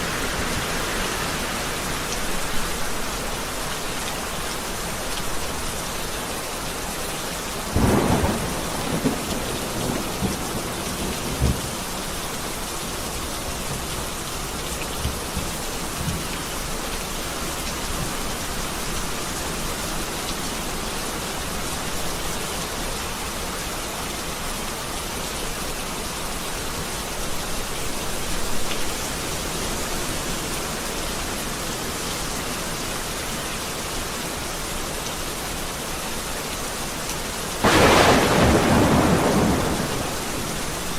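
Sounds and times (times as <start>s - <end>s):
heavy rain: 0.0s - 40.9s
thunder clap and rumble: 7.8s - 12.0s, 37.6s - 40.9s.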